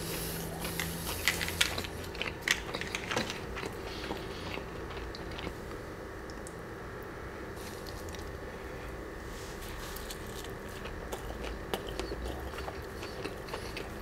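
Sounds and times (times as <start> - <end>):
crunchy chewing: 0.0 - 5.6, 9.7 - 14.0.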